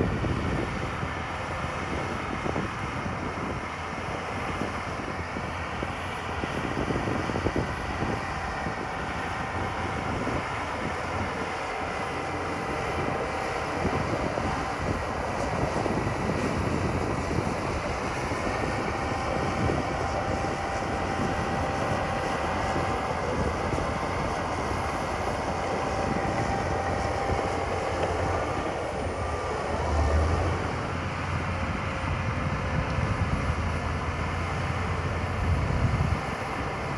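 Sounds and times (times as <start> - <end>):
heavy diesel machinery running: 0.0 - 36.9.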